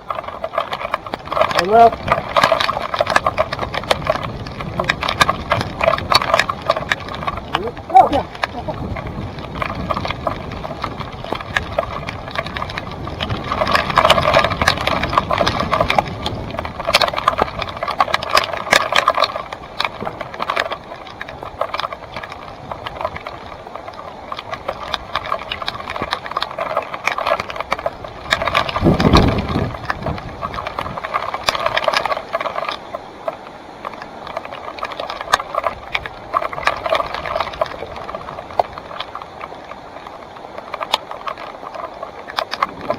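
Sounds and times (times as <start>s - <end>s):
mountain bike rattling and clicking: 0.0s - 42.9s.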